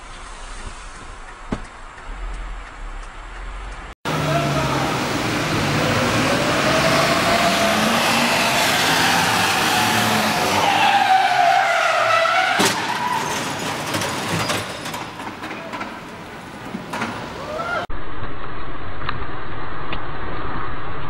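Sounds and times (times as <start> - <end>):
car tyres skidding: 5.4 - 16.1
car crash: 11.9 - 16.1.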